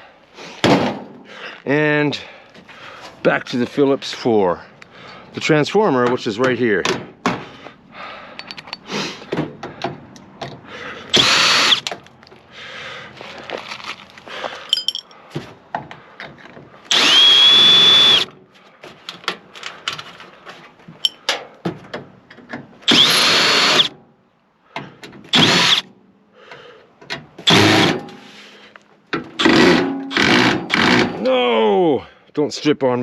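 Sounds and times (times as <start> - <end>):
metal clicks and knocks: 8.4 - 10.6
power drill motor whine: 11.1 - 11.8, 16.9 - 18.3, 22.9 - 23.9, 25.3 - 25.8.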